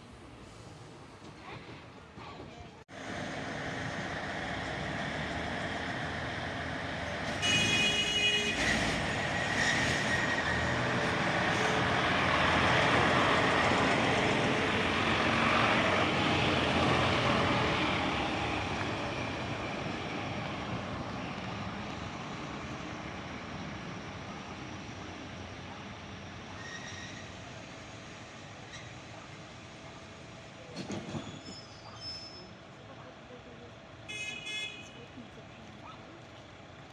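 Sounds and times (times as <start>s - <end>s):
train wheels rumbling: 0.1s - 32.0s.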